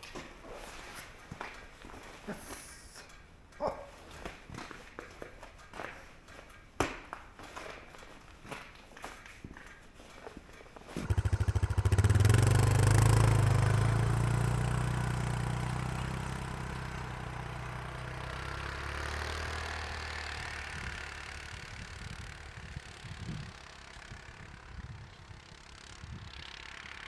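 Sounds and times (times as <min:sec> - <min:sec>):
motorcycle engine running: 0:10.8 - 0:27.0.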